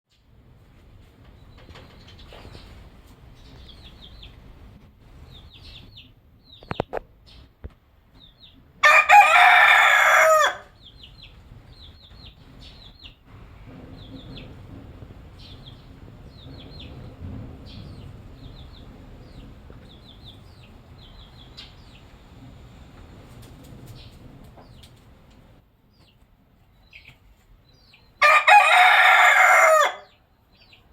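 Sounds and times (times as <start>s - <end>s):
rooster crowing: 8.8s - 10.8s, 28.2s - 30.2s.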